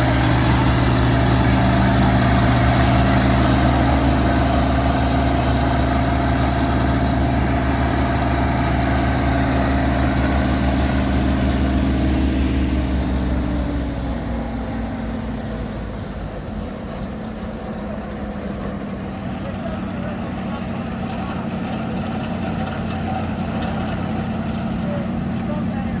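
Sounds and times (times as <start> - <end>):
heavy farm machine engine: 0.0 - 26.0.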